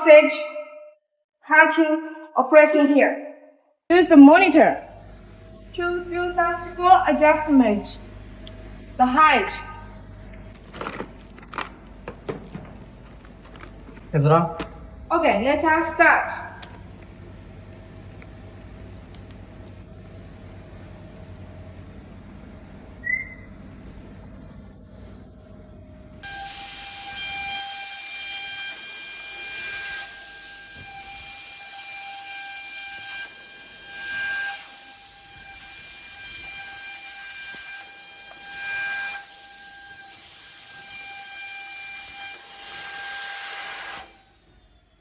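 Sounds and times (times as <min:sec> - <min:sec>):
router spindle whining: 0:10.6 - 0:15.0
milling bit cutting plywood: 0:10.7 - 0:14.8.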